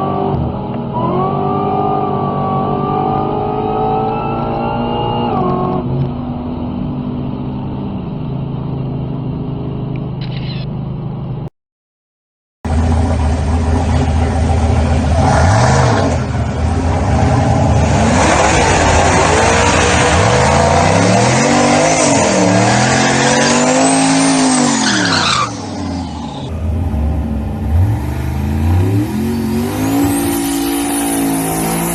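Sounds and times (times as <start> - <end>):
engine revving: 12.7 - 31.9.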